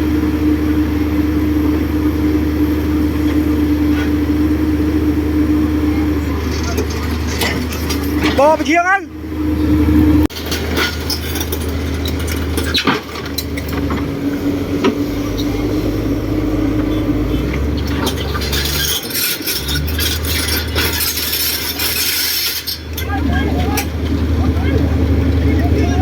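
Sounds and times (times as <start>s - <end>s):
diesel engine running: 0.0s - 26.0s
metallic clinks and clanks: 10.3s - 14.0s, 17.8s - 24.0s.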